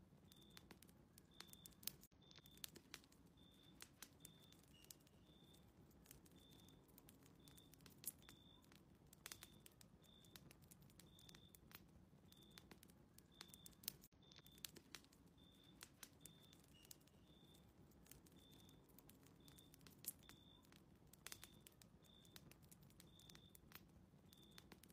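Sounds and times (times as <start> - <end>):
wood fire crackling: 0.0 - 24.9.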